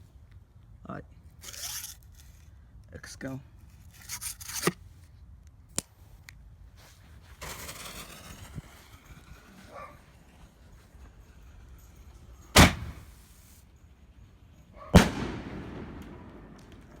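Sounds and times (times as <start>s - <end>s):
firework shell boom: 12.5s - 13.2s, 15.0s - 17.0s.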